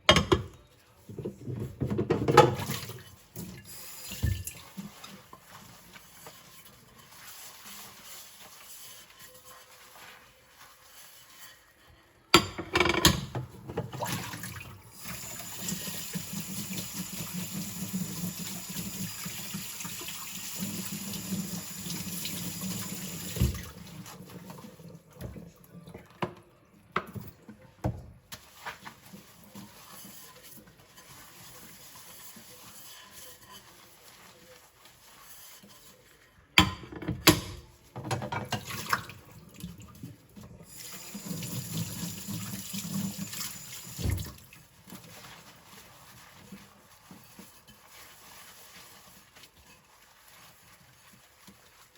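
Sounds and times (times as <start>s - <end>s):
tap water running over plates: 0.1s - 11.4s, 12.5s - 36.0s, 37.2s - 51.9s
rinse water splashing: 1.3s - 11.7s, 13.3s - 25.1s, 37.6s - 51.9s.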